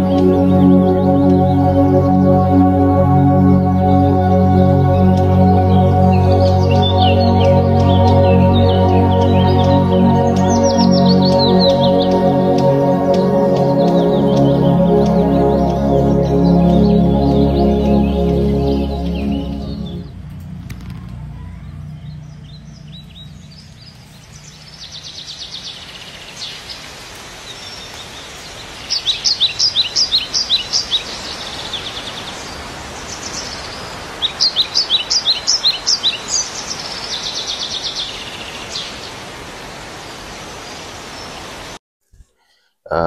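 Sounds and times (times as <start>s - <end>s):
outdoor background hiss: 0.0s - 41.8s
songbird calling: 5.0s - 20.1s.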